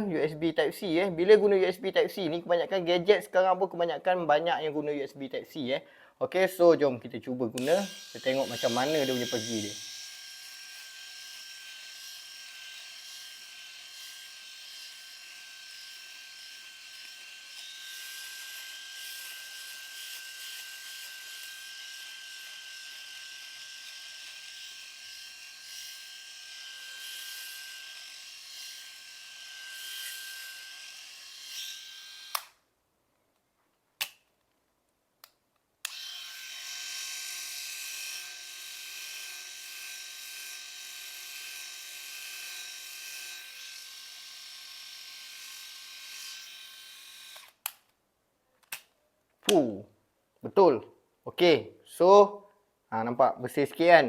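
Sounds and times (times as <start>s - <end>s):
electric shaver whining: 7.6s - 32.6s, 35.8s - 47.6s.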